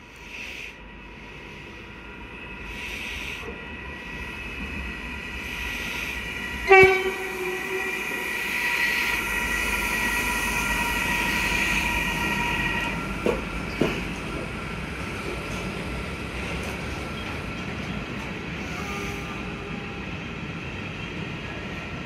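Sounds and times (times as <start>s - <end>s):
electric locomotive whine: 0.0s - 22.0s
freight train rumble: 0.0s - 22.0s
train horn toot: 6.6s - 13.0s, 18.6s - 20.1s.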